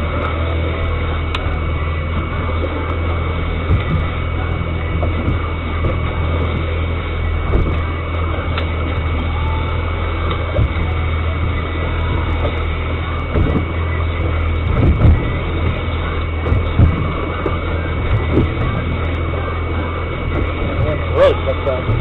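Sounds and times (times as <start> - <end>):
boat engine humming: 0.0 - 22.0
water and wind noise: 0.0 - 22.0
dull thumps: 3.6 - 6.7, 7.4 - 8.0, 10.3 - 19.2, 20.2 - 22.0.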